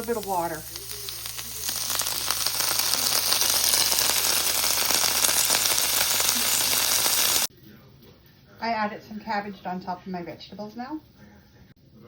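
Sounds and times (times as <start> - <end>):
cabbage sizzling in a frying pan: 0.0 - 7.5.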